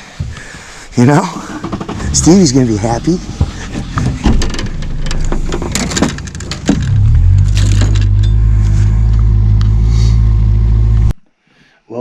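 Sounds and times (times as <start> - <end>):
engine droning: 0.4 - 11.2
knocks and rattles: 1.2 - 8.5.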